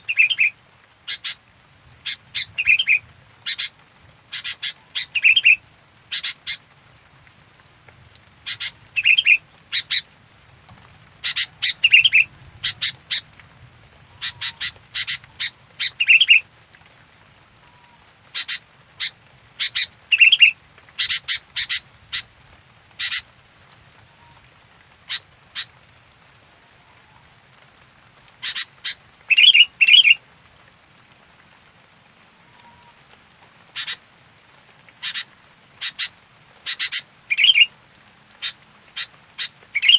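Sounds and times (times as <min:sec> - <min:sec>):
bird chattering: 0:00.0 - 0:00.5, 0:01.1 - 0:01.4, 0:02.0 - 0:03.7, 0:04.3 - 0:06.6, 0:08.5 - 0:10.0, 0:11.2 - 0:13.2, 0:14.2 - 0:16.4, 0:18.4 - 0:22.3, 0:23.0 - 0:23.2, 0:28.4 - 0:30.2, 0:33.8 - 0:34.0, 0:35.0 - 0:36.1, 0:36.7 - 0:37.7, 0:38.4 - 0:39.9.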